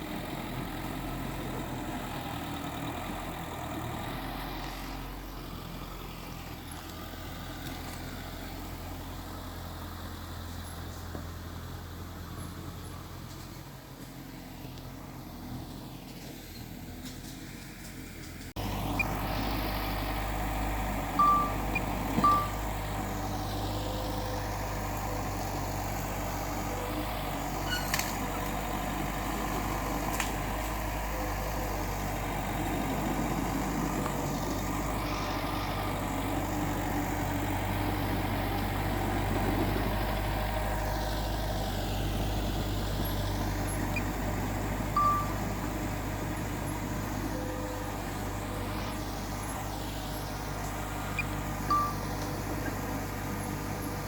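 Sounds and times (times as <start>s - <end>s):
diesel engine running: 0.0s - 54.0s
short high beeps: 21.2s - 22.6s, 45.0s - 45.4s, 51.7s - 52.0s.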